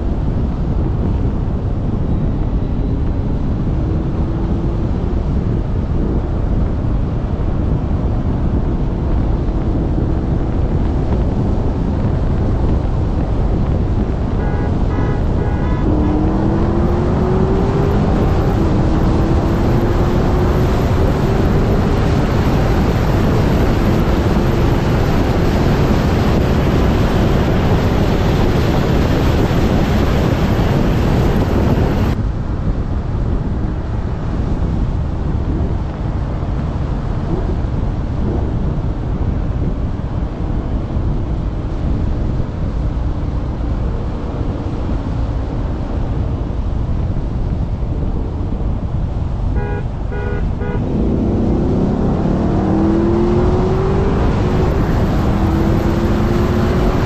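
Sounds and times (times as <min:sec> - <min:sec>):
wind buffeting microphone: 0:00.0 - 0:57.0
car engine accelerating: 0:01.7 - 0:32.2, 0:48.9 - 0:57.0.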